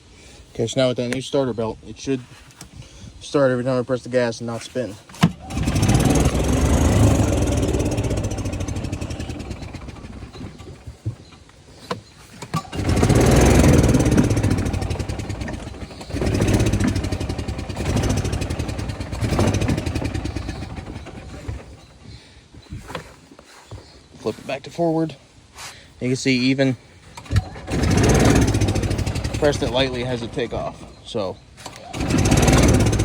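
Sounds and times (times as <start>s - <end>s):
golf cart engine starting and revving: 4.7s - 22.0s, 27.0s - 33.0s.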